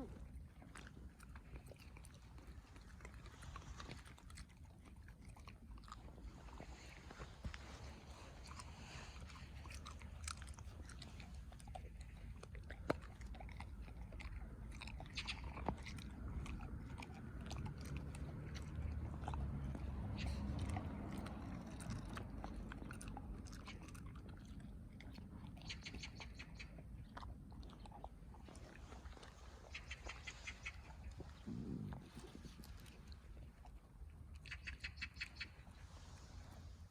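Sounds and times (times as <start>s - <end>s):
dog chewing grass: 0.0s - 35.8s.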